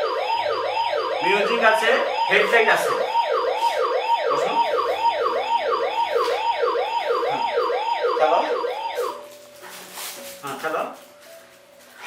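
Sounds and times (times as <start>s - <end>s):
toy siren wailing: 0.0s - 9.2s.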